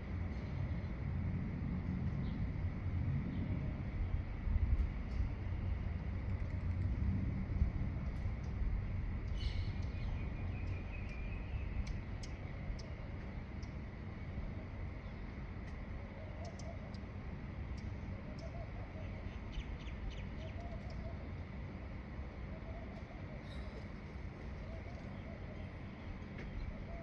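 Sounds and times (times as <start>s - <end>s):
steady low rumble: 0.0s - 27.0s
low wavering bird calls: 16.0s - 21.5s, 22.3s - 27.0s.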